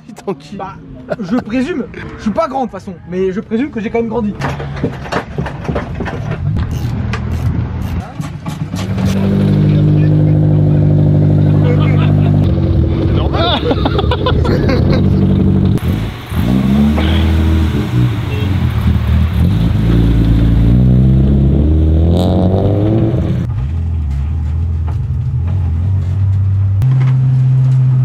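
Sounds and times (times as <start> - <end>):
car engine revving: 6.8 - 28.0.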